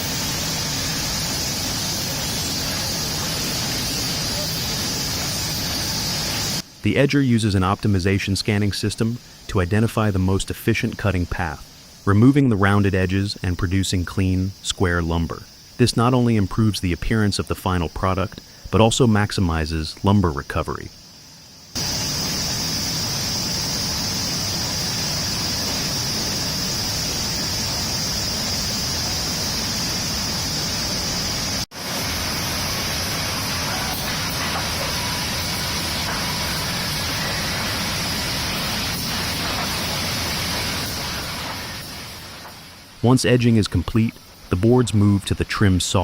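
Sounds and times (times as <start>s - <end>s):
sawmill machinery running: 21.8s - 42.9s.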